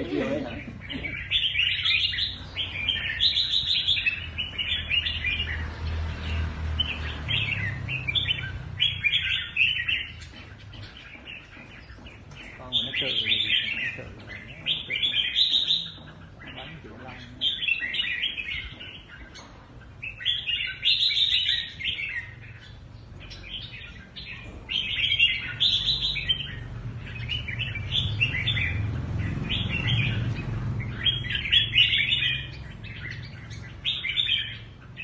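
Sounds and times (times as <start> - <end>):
bird singing chirpy phrases: 0.0 - 35.0.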